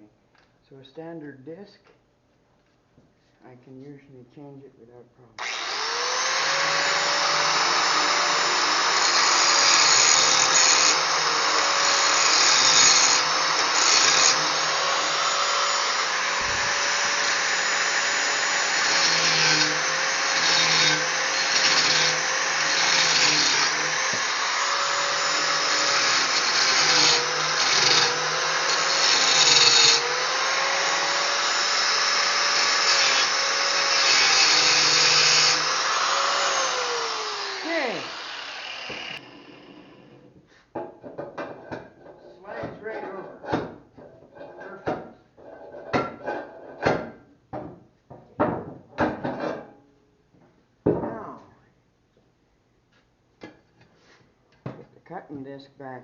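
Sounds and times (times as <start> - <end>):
angle grinder grinding metal: 5.4 - 40.3.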